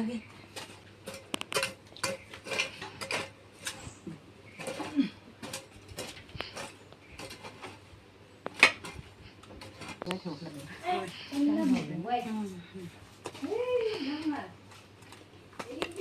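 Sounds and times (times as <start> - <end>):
household objects clicking and knocking: 0.5 - 3.9, 4.5 - 10.7.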